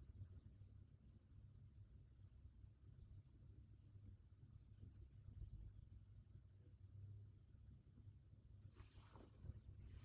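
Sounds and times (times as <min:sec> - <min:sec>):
faint rustle: 0:08.8 - 0:10.0.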